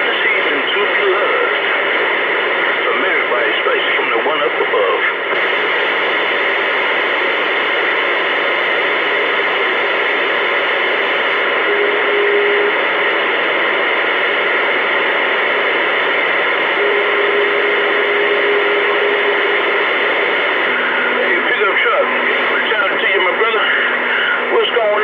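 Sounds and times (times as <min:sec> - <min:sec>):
radio static hiss: 0:00.0 - 0:25.0
steady tone: 0:09.7 - 0:25.0.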